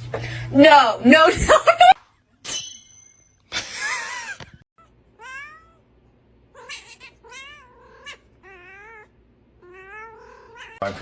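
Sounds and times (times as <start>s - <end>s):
cat meowing and yowling: 5.2s - 5.8s, 6.6s - 10.8s.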